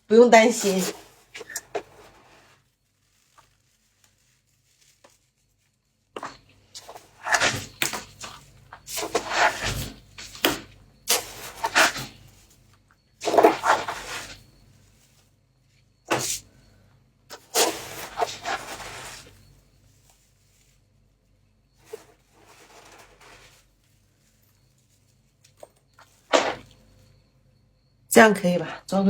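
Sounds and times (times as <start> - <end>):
frost crunching and scraping: 0.4 - 12.6, 13.2 - 15.2, 17.3 - 20.8, 21.8 - 26.8.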